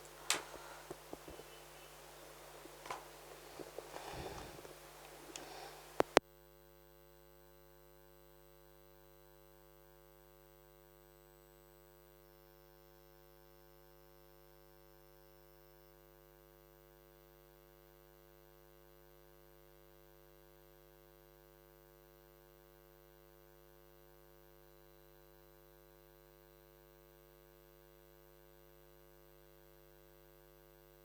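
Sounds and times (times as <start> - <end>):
faint electrical hum: 0.0 - 6.2.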